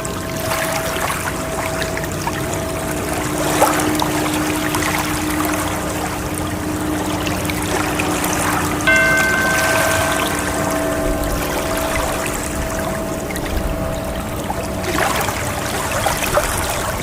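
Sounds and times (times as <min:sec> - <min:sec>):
rushing water: 0:00.0 - 0:17.0
soft steady tones: 0:00.0 - 0:17.0
bright tone: 0:06.9 - 0:16.3.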